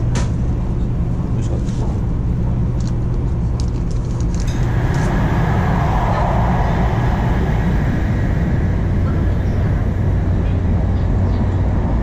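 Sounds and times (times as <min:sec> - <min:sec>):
train cabin rumble: 0:03.4 - 0:12.0
rushing noise: 0:04.2 - 0:12.0.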